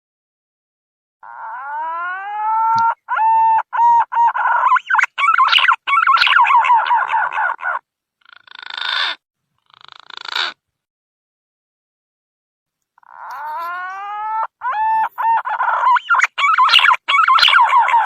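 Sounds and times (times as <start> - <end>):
pigeon song whistled warbles: 1.6 - 7.5, 13.3 - 18.0.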